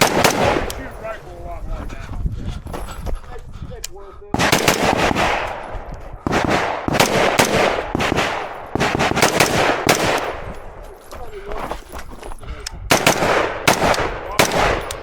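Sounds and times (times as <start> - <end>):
rifle shots echoing: 0.0 - 1.3, 4.4 - 10.8, 12.9 - 15.0.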